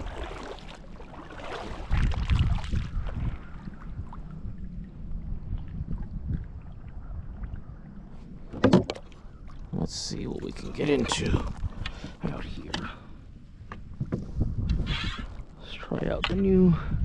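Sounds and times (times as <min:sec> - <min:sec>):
wind rumbling on microphone: 0:00.0 - 0:17.0
faint knocks from boat: 0:08.4 - 0:09.3, 0:13.6 - 0:14.4.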